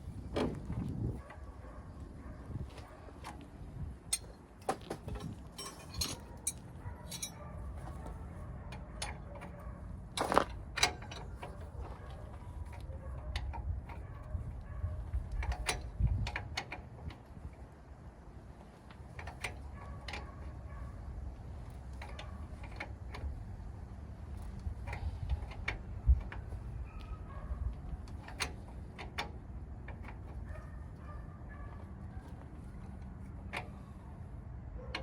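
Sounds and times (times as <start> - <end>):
metallic clicks and knocks of tools: 4.1 - 8.0, 15.2 - 17.2, 28.0 - 30.6.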